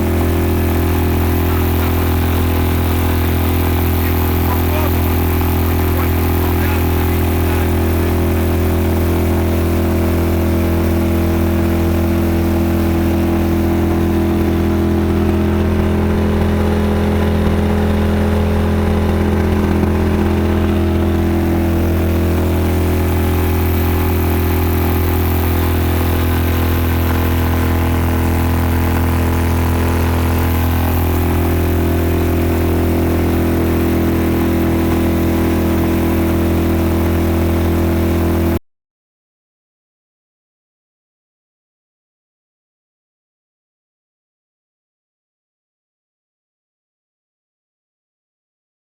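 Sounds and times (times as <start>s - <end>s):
outboard motor running: 0.0s - 38.6s.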